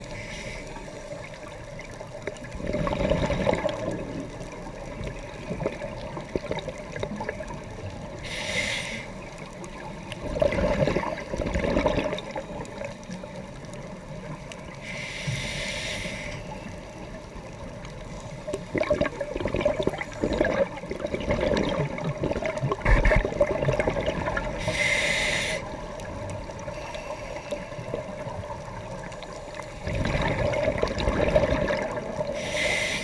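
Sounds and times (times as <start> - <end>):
regulator hissing inhalations: 0.0 - 1.2, 8.2 - 9.3, 14.8 - 16.8, 24.6 - 25.9, 32.3 - 33.0
exhaled bubbles gurgling: 1.2 - 14.8, 16.6 - 33.0.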